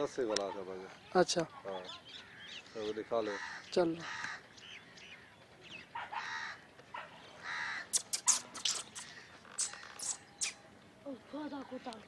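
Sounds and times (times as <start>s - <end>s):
birds calling: 0.0s - 12.0s
sharp clicks: 7.9s - 10.6s.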